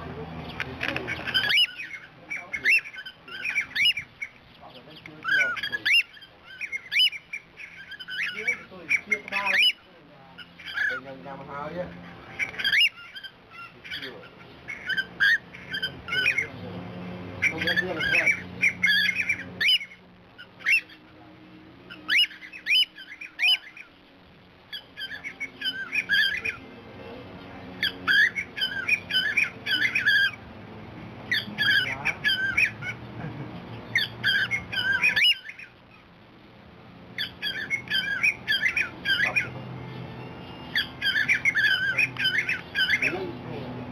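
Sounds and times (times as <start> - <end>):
cockatiel squawky chirps: 1.1 - 4.4, 5.2 - 11.1, 12.0 - 16.5, 17.4 - 21.1, 21.9 - 23.9, 24.7 - 26.6, 27.8 - 30.4, 31.3 - 33.0, 33.9 - 36.0, 37.2 - 39.6, 40.6 - 43.2.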